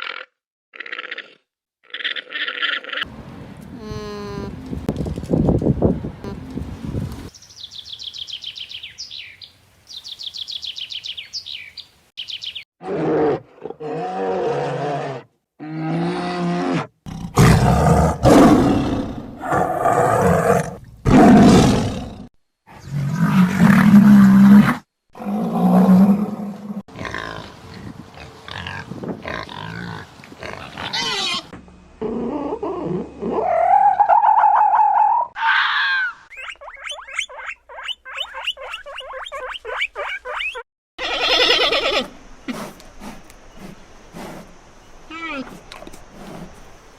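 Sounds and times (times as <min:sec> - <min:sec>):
wild animals roaring and growling: 0:12.8 - 0:27.4
rising animal call: 0:30.8 - 0:42.7
bird trilling: 0:36.0 - 0:42.1.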